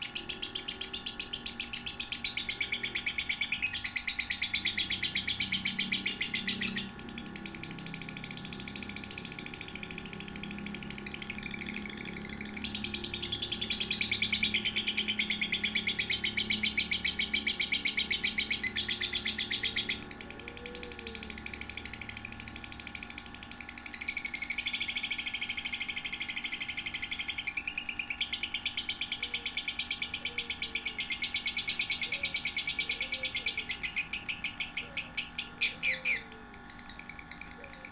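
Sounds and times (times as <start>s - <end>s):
bird chattering trill: 0.0s - 37.9s.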